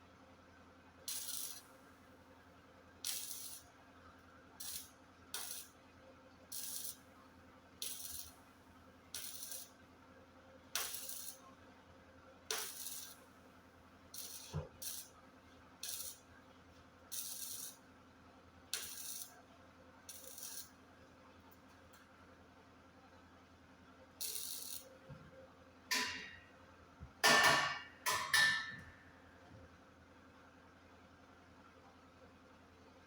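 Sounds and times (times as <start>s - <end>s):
welding crackling hisses: 1.1s - 1.7s, 3.1s - 3.7s, 4.6s - 5.7s, 6.5s - 7.0s, 7.8s - 8.4s, 9.2s - 9.8s, 10.8s - 11.4s, 12.5s - 13.2s, 14.2s - 15.1s, 15.8s - 16.2s, 17.1s - 17.8s, 18.8s - 19.3s, 20.1s - 20.8s, 24.2s - 24.8s.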